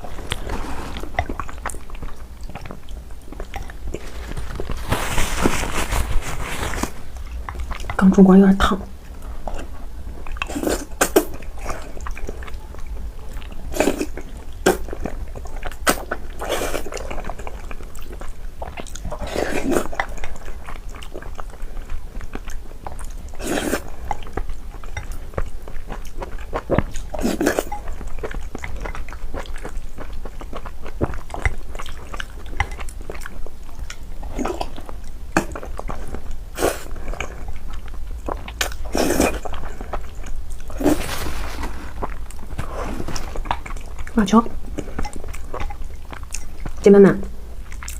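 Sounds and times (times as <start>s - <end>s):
person chewing and biting food: 9.4s - 46.8s, 47.6s - 47.9s.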